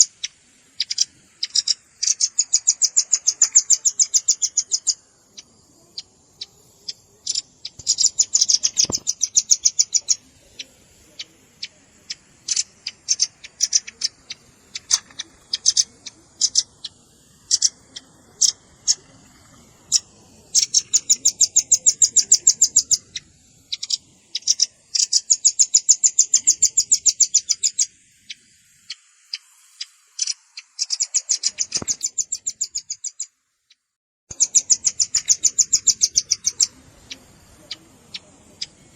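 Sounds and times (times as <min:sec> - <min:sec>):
bird chattering trills: 0:00.0 - 0:33.3, 0:34.3 - 0:38.9
bird single chips: 0:00.0 - 0:33.3.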